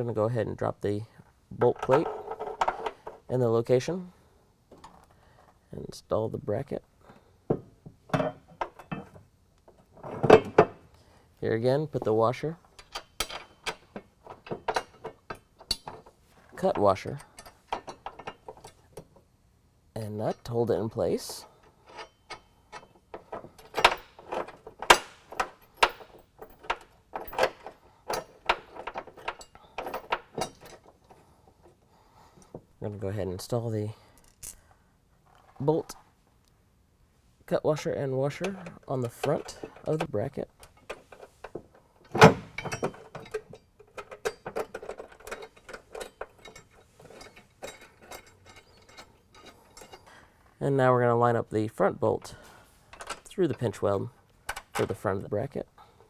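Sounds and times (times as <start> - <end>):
small metal hardware clinking: 7.5 - 10.9, 12.6 - 19.2, 21.2 - 31.2, 34.2 - 34.7, 38.4 - 50.2.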